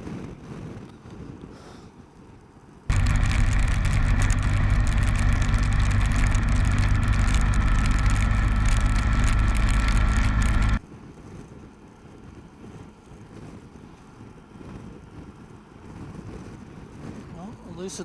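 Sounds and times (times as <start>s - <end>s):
wind and road noise: 0.0s - 18.0s
motorcycle engine cruising: 2.9s - 10.8s.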